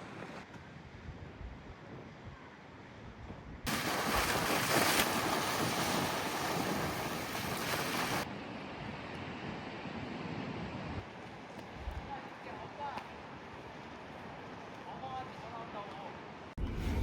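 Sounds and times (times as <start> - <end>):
ocean waves rushing: 3.7 - 8.3.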